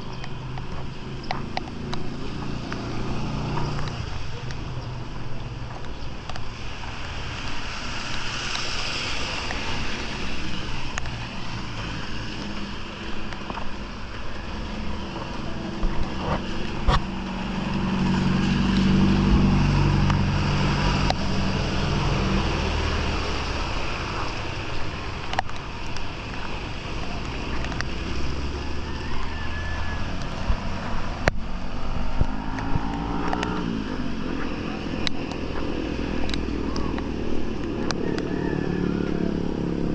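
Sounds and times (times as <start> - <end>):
rushing water: 0.0 - 39.9
vehicle engine running: 12.4 - 25.0.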